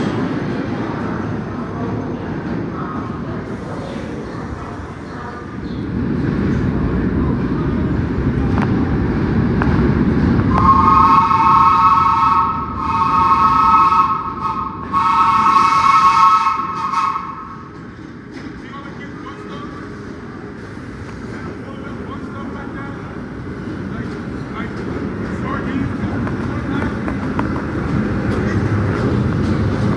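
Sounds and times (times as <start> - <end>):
train rumbling: 0.0 - 29.9
train chord horn blasts: 10.5 - 17.6.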